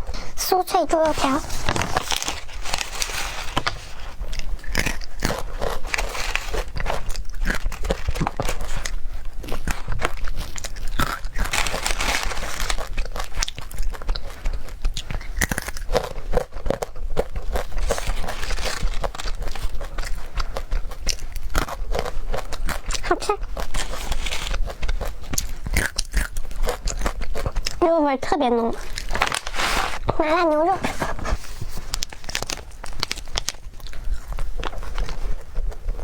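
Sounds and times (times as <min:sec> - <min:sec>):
crunchy snack chewing: 0:00.9 - 0:27.8, 0:28.7 - 0:30.1, 0:30.9 - 0:36.0.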